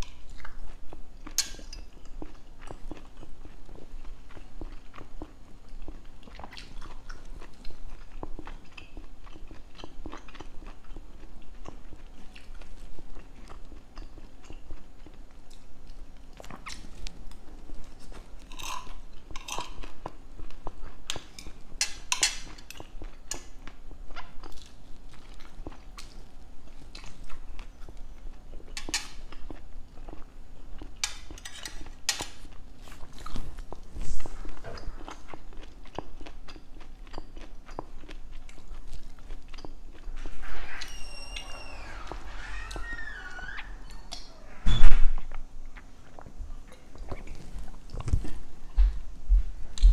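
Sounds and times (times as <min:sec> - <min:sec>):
chewing and biting: 0:00.2 - 0:40.1.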